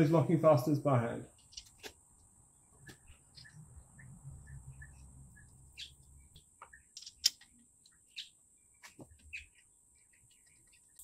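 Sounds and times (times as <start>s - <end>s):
faint bird chirps: 2.8s - 11.0s.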